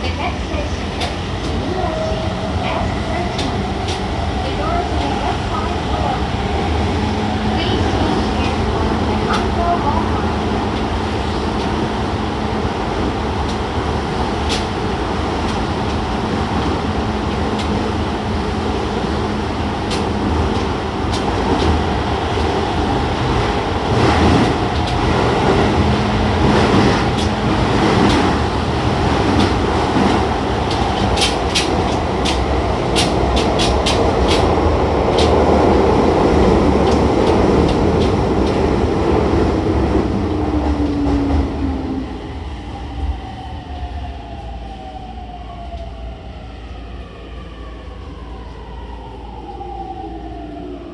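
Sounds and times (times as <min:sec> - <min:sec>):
subway train rumbling: 0:00.0 - 0:50.9
wheels clicking over rail joints: 0:23.9 - 0:38.7.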